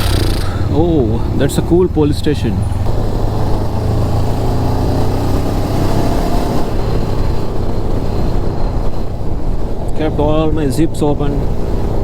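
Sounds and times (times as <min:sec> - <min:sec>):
motorcycle engine running: 0:00.0 - 0:05.2
wind rushing on microphone: 0:00.0 - 0:12.0.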